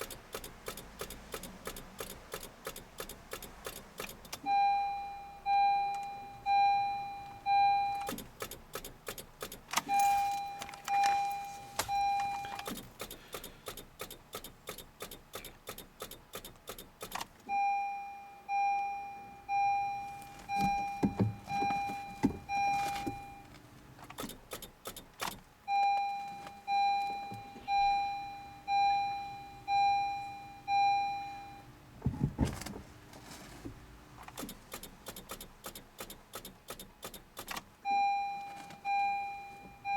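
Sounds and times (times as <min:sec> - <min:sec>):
rapid electrical clicking: 0:00.0 - 0:04.4, 0:08.0 - 0:09.9, 0:12.6 - 0:17.3
car warning chime beeping: 0:00.0 - 0:23.6, 0:24.2 - 0:32.0, 0:34.4 - 0:39.9.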